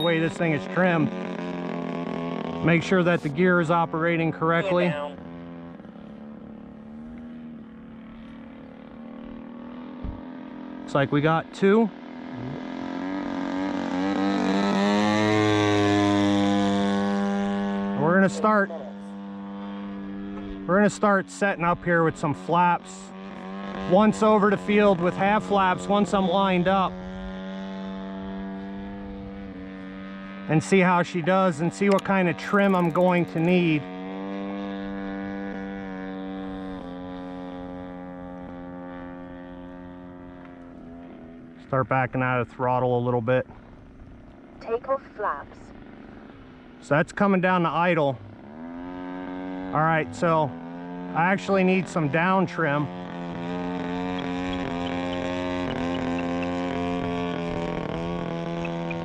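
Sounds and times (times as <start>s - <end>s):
model airplane engine passing: 0.0s - 41.6s, 45.1s - 59.0s.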